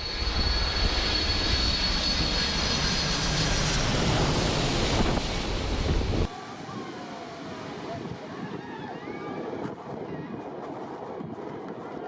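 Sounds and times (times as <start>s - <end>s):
high engine whine: 0.0s - 8.2s
airplane engine rushing: 0.0s - 12.0s.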